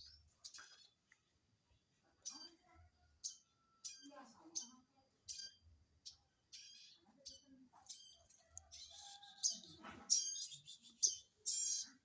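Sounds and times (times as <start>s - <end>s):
nestlings chirping: 3.3s - 12.0s.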